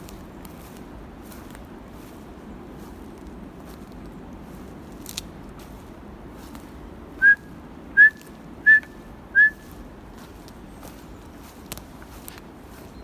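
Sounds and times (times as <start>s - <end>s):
short sharp whistles: 7.2s - 9.7s.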